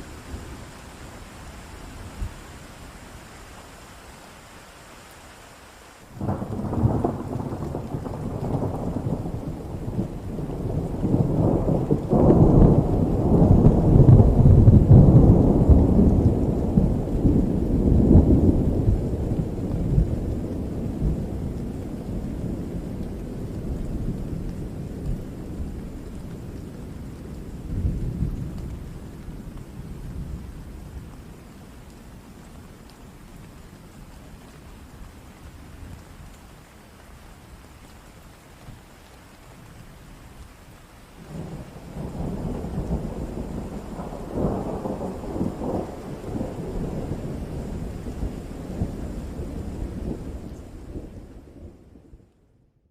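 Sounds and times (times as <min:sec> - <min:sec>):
steady rain: 0:00.0 - 0:52.9
thunder rumbling: 0:06.1 - 0:31.4, 0:41.2 - 0:52.3.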